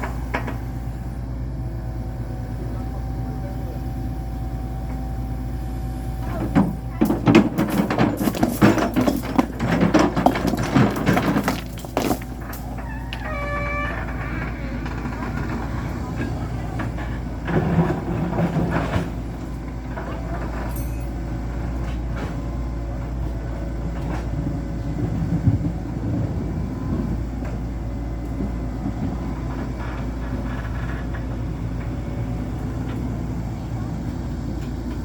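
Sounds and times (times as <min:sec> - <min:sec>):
machine rumble: 0:00.0 - 0:35.0
clattering knocks and rattles: 0:06.2 - 0:23.2, 0:28.4 - 0:33.4.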